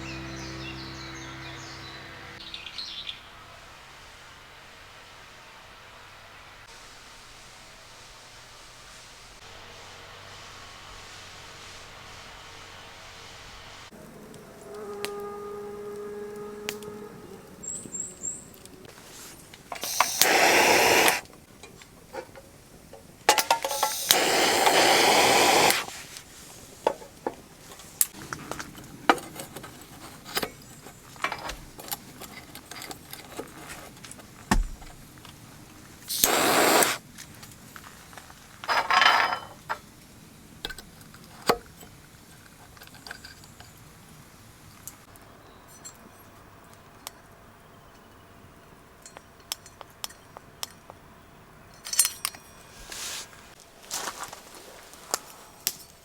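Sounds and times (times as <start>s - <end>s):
short bursts of hissing: 19.0s - 21.2s, 23.4s - 26.8s, 36.1s - 37.0s
camp gear clicking and knocking: 28.3s - 35.1s.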